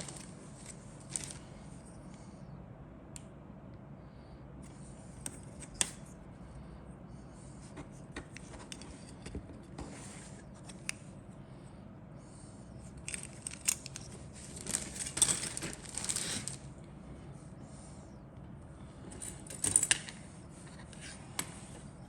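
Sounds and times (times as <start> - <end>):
packaging rustling and crinkling: 0.0 - 1.5, 13.1 - 16.7.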